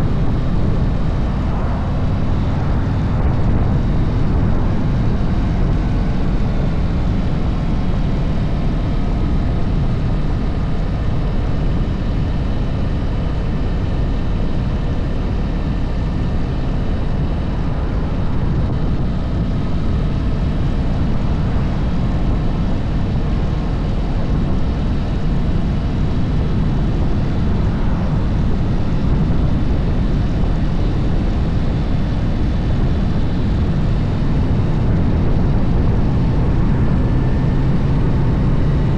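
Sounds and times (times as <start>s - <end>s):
motorcycle engine rumbling: 0.0s - 8.4s, 15.1s - 38.9s.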